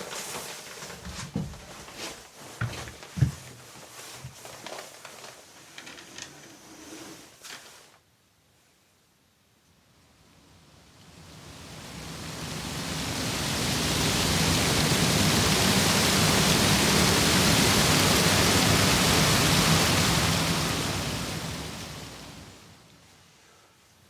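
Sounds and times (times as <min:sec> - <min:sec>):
steady rushing hiss: 0:09.8 - 0:24.0.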